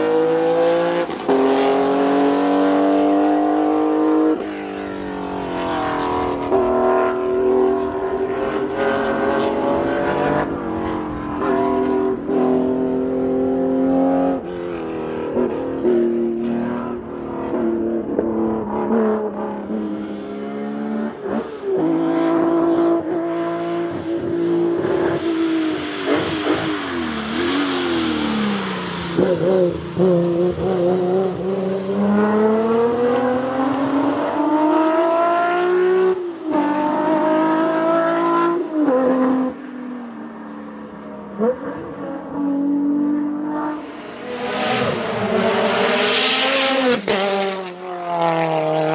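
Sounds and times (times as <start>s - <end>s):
car engine revving hard: 0.0s - 4.4s, 5.2s - 39.6s, 41.4s - 48.9s
hissing tyre or wind noise: 23.9s - 31.8s.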